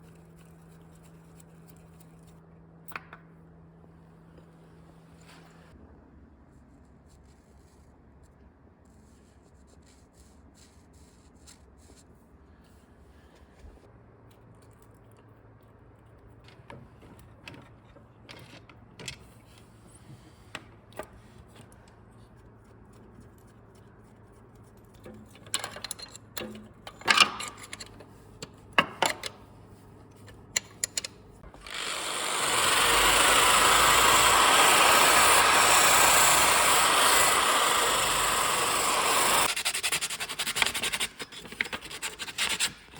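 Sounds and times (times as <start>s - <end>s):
power tool running: 31.5s - 39.9s.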